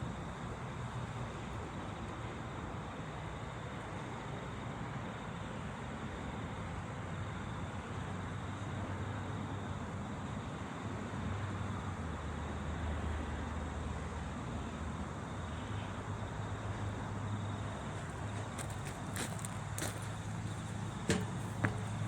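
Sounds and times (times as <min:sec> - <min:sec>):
train running with low hum: 0:10.6 - 0:22.0.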